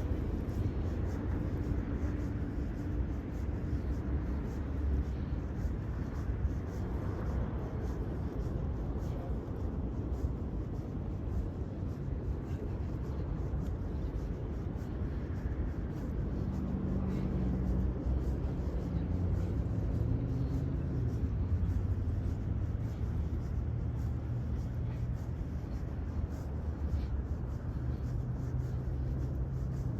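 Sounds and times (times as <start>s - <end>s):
city traffic rumble: 0.0s - 29.9s
vehicle engine hum: 0.0s - 29.9s.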